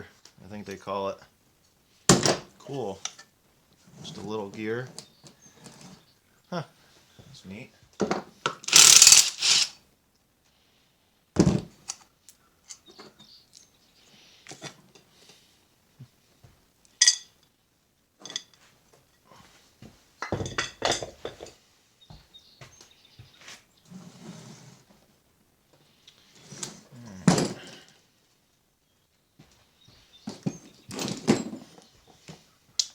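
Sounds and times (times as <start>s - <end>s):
metal tools clinking and scraping: 8.7s - 9.7s, 17.0s - 17.3s.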